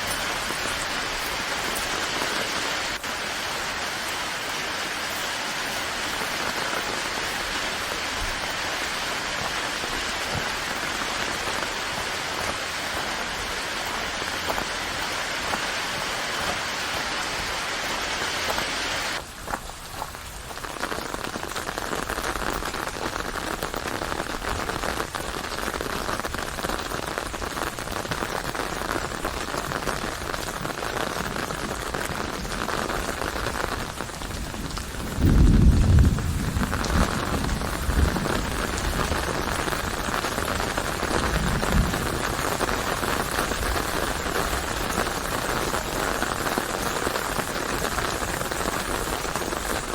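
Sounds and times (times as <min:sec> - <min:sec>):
rain falling: 0:00.0 - 0:49.9
thunder rumble: 0:32.3 - 0:46.4.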